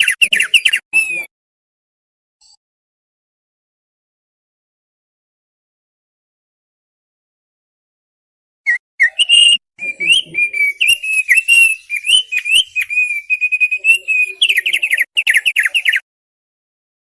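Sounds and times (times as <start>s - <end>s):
bird singing whistled notes: 0.0s - 1.3s, 8.7s - 16.0s.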